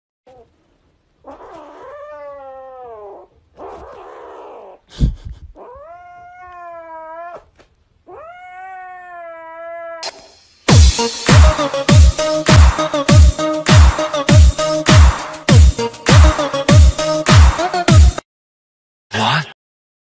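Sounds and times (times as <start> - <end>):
kitten meowing: 5.6 - 7.5, 8.1 - 10.1.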